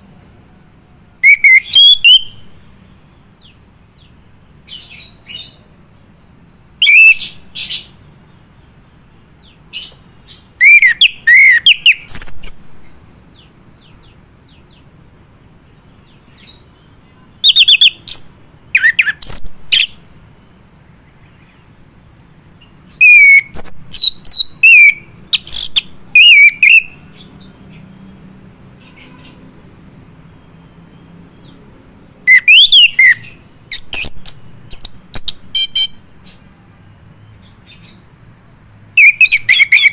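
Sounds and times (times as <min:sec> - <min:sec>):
thrush singing whistled phrases: 0:01.2 - 0:02.6, 0:06.8 - 0:08.0, 0:09.9 - 0:13.0, 0:17.4 - 0:20.0, 0:23.0 - 0:27.1, 0:32.3 - 0:36.5, 0:39.0 - 0:39.9.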